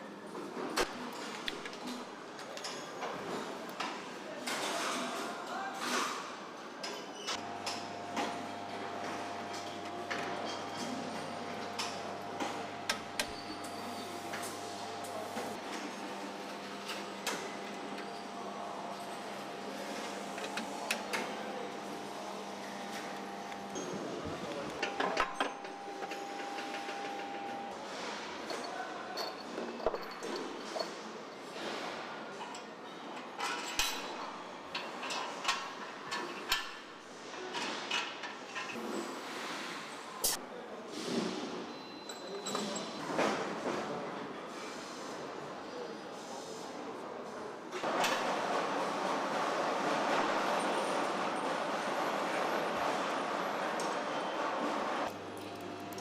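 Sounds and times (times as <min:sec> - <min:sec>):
steady factory background hum: 0:00.0 - 0:56.0
machinery humming: 0:07.4 - 0:27.8
metallic clinks and knocks of tools: 0:28.5 - 0:31.0.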